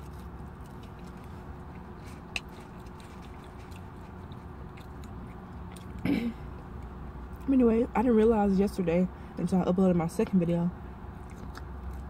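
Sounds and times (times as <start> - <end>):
person chewing: 0.0 - 7.4, 11.1 - 12.0
low hum inside a car: 0.0 - 12.0.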